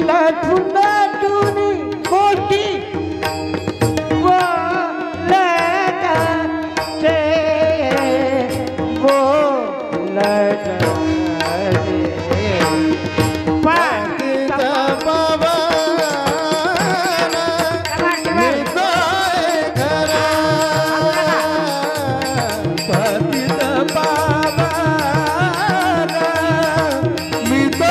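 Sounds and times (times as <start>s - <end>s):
person singing devotional song: 0.0s - 27.9s
tabla strokes: 0.0s - 27.9s
sustained accompaniment: 1.8s - 27.9s.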